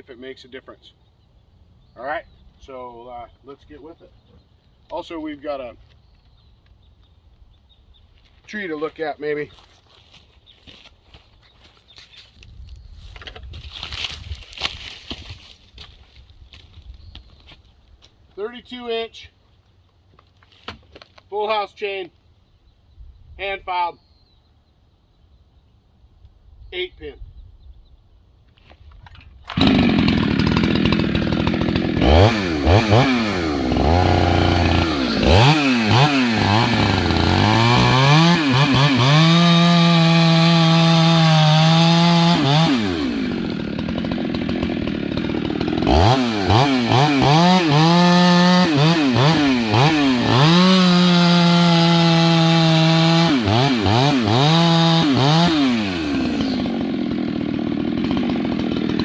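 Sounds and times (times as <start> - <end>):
chainsaw revving: 29.5 - 59.0.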